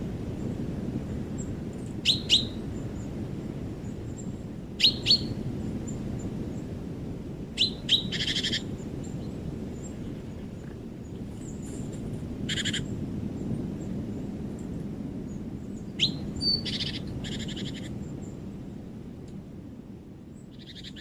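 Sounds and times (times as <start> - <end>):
steady low rumble: 0.0 - 21.0
songbird chirping: 2.0 - 2.9, 4.2 - 5.4, 15.3 - 18.4.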